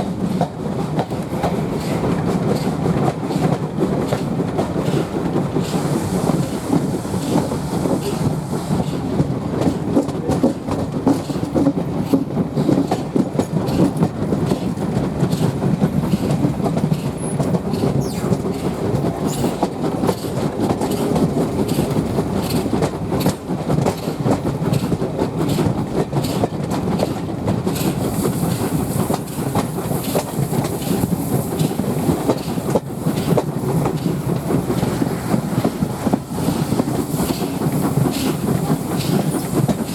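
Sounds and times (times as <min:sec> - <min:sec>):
train rumbling along track: 0:00.0 - 0:39.9
wheels clicking over rail joints: 0:00.2 - 0:39.9
steam hiss: 0:04.9 - 0:09.8, 0:27.7 - 0:39.9.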